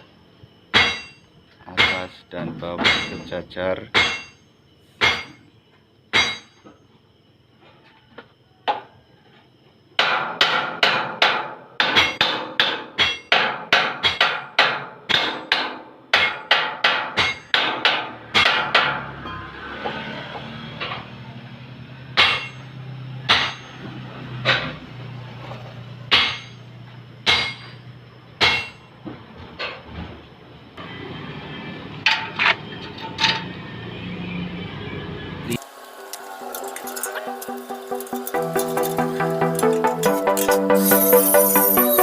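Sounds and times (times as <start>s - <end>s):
hammer striking metal: 0.7s - 1.2s, 1.8s - 2.1s, 2.8s - 3.3s, 3.9s - 4.4s, 5.0s - 5.4s, 6.1s - 6.6s, 10.0s - 19.5s, 22.2s - 22.7s, 23.3s - 23.8s, 26.1s - 26.6s, 27.2s - 27.8s, 28.4s - 28.8s, 36.5s - 42.0s.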